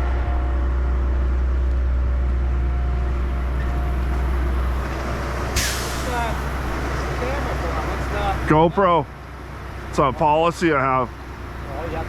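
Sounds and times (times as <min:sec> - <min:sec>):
diesel engine idling: 0:00.0 - 0:12.0
short sharp hiss: 0:05.5 - 0:06.5.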